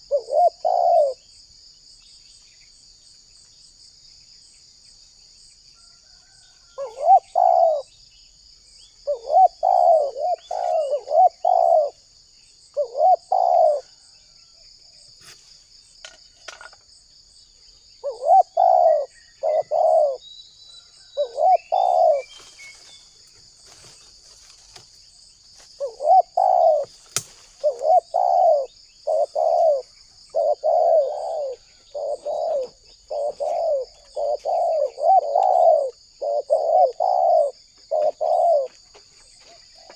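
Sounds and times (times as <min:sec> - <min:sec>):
dove cooing: 0:00.0 - 0:01.2, 0:06.8 - 0:07.9, 0:09.0 - 0:12.1, 0:12.8 - 0:14.1, 0:18.0 - 0:20.2, 0:21.2 - 0:22.4, 0:25.8 - 0:27.0, 0:27.6 - 0:39.9
insect trill: 0:00.0 - 0:39.9.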